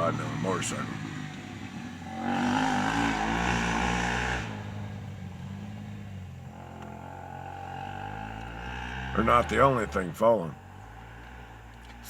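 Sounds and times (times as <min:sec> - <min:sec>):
small motorcycle engine revving: 0:00.0 - 0:12.0.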